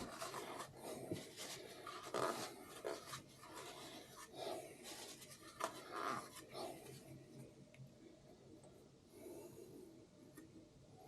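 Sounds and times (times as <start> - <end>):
rubbing and scraping on metal: 0.0 - 7.0
faint steady hum: 0.0 - 11.0.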